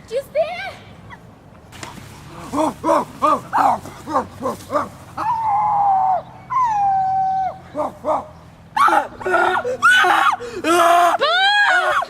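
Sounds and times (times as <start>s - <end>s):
long howls: 5.2s - 8.2s.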